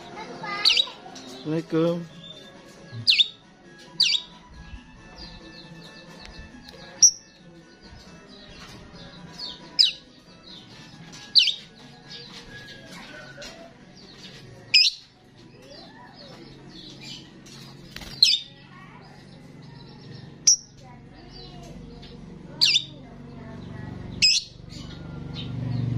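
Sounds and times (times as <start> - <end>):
starling chattering: 0.0 - 1.4, 9.4 - 25.0.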